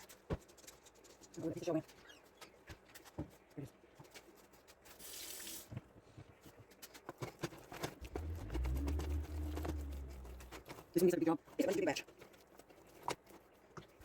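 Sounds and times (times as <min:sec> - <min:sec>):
low hum: 0:08.0 - 0:10.8.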